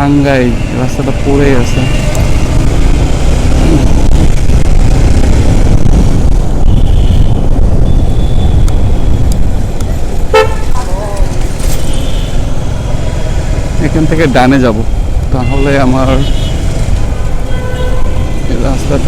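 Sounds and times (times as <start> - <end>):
motorcycle wind and engine rumble: 0.0 - 19.0
vehicle horns honking: 6.6 - 9.2, 10.3 - 10.9, 11.7 - 12.5, 15.4 - 18.9.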